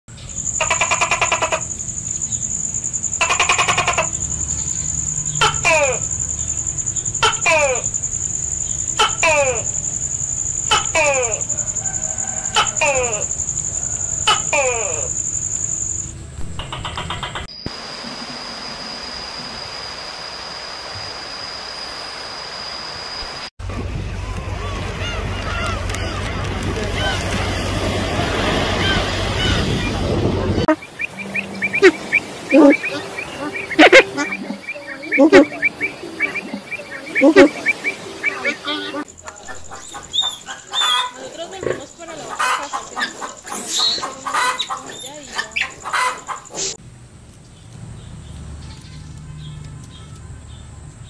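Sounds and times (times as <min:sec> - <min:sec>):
steady high-pitched whine: 0:00.1 - 0:26.0
buzzy pulsed animal trills: 0:00.4 - 0:17.5, 0:30.6 - 0:42.2
quick falling animal calls: 0:07.2 - 0:08.0, 0:08.9 - 0:09.9, 0:10.6 - 0:15.2.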